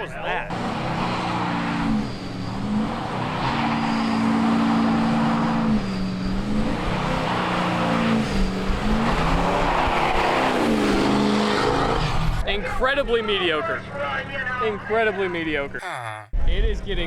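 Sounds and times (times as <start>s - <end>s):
car engine running loud: 0.0s - 15.4s
road and tyre noise: 0.0s - 15.8s.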